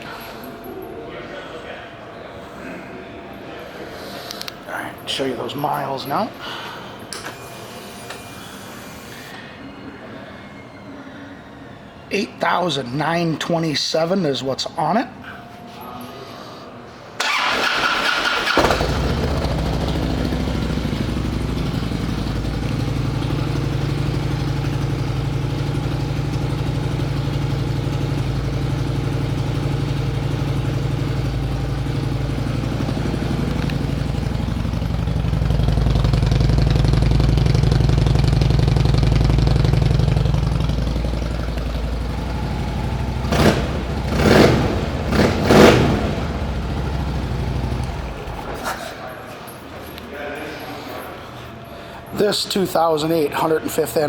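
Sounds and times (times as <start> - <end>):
motorcycle throttle blips: 17.2 - 48.6
motorcycle engine starting and idling: 17.2 - 48.7.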